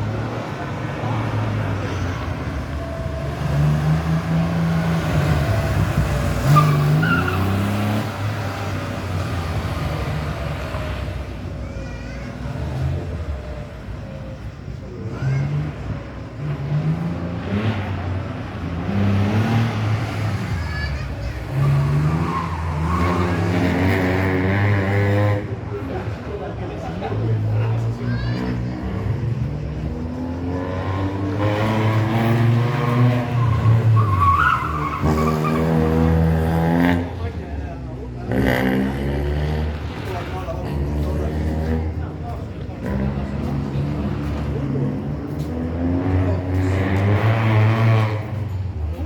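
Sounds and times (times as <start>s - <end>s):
rally car engine revving: 0.0s - 11.6s, 12.3s - 49.0s
tyres squealing: 1.5s - 10.0s, 18.8s - 24.4s, 30.8s - 36.5s.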